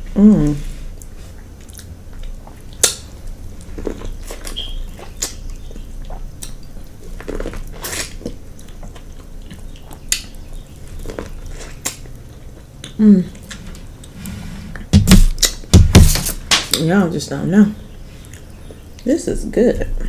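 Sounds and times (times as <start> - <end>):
wet chewing and lip-smacking: 1.0 - 14.2.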